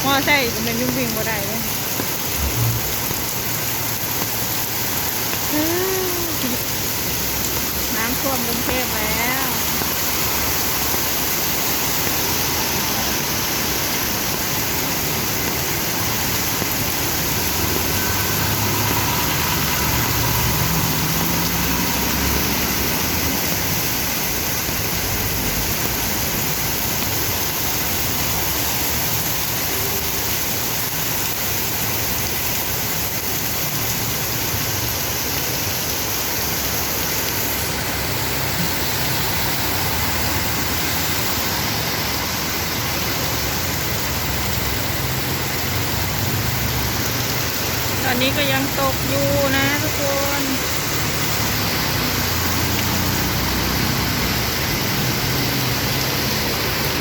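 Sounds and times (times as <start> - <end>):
heavy rain hissing: 0.0 - 57.0
vehicle engines rumbling: 0.0 - 57.0.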